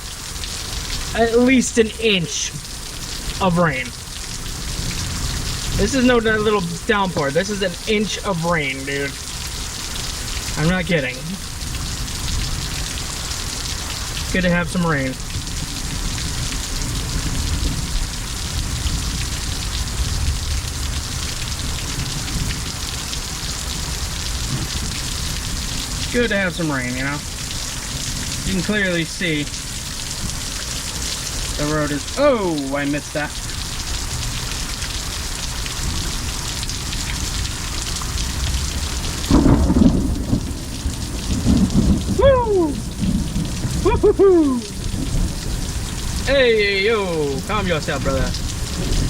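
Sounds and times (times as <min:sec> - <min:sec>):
heavy rain splashing: 0:00.0 - 0:49.0
thunder rumbling: 0:00.7 - 0:09.4, 0:38.3 - 0:49.0.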